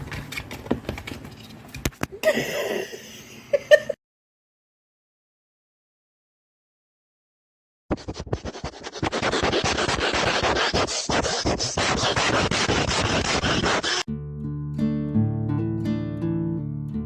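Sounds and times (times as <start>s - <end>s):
rough scratching and rubbing: 7.9s - 14.1s
strummed acoustic guitar music: 14.1s - 17.0s.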